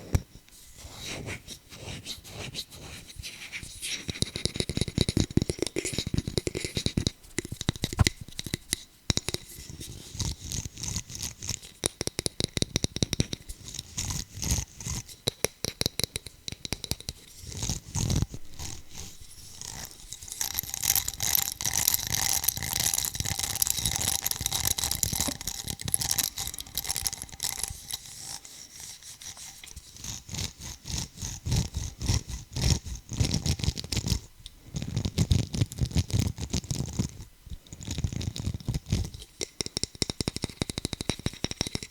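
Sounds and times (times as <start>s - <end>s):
hand tapping and scratching object: 3.6s - 41.9s
steady scraping: 17.2s - 34.2s.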